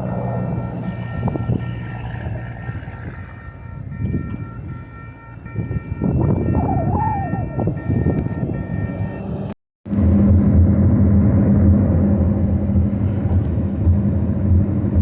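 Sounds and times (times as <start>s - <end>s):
high-pitched tones: 0.0s - 9.5s
freight train rumble: 0.0s - 15.0s.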